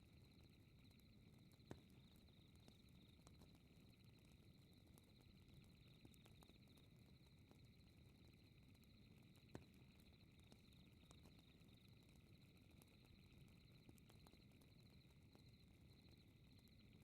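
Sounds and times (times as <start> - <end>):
fireplace crackling and popping: 0.9 - 17.0.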